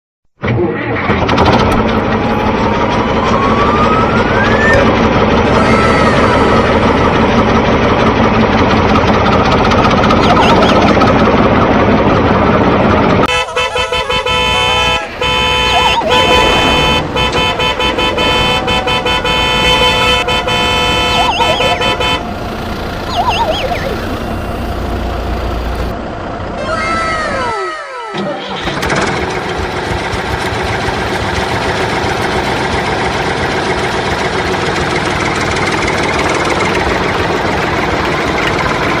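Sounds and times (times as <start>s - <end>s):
vehicle engine: 0.4s - 39.0s
horn toots: 13.2s - 22.5s.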